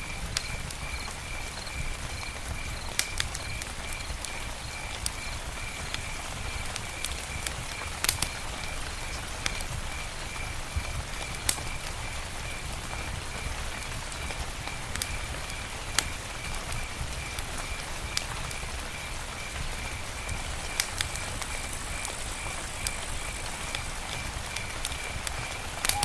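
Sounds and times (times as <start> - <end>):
campfire hissing: 0.0 - 26.0
wood cracking pops: 24.5 - 26.0.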